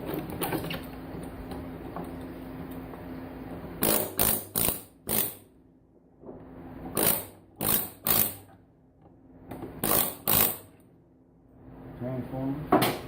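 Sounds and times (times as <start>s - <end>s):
low steady hum: 0.0s - 13.0s
air hammer firing in bursts: 3.8s - 5.5s, 7.0s - 8.4s, 9.8s - 10.8s.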